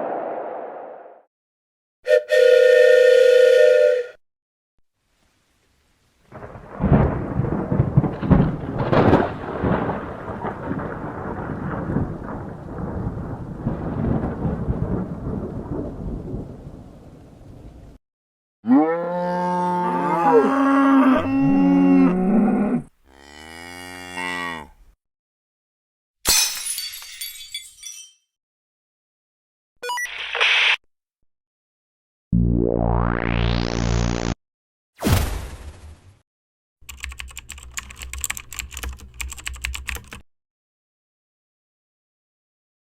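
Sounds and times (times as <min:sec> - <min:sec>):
rolling thunder rumble: 0:06.3 - 0:18.0
cow mooing: 0:18.6 - 0:24.8.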